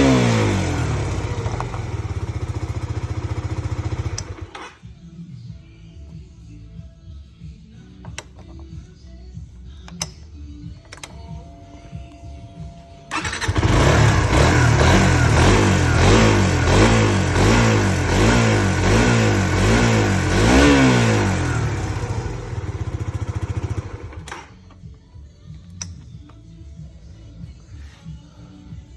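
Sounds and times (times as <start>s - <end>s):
motorcycle engine revving: 0.0s - 4.7s, 13.1s - 24.4s.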